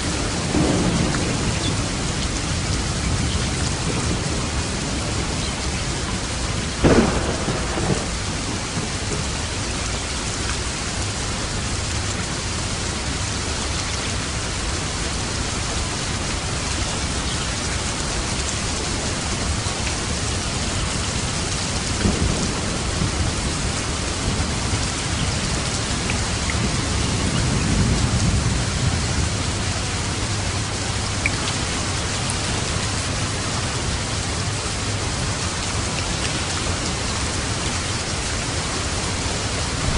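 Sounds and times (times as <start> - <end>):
thunder cracking and rumbling: 0.0 - 12.2, 19.4 - 35.4, 39.0 - 39.9
heavy rain falling: 0.0 - 39.9.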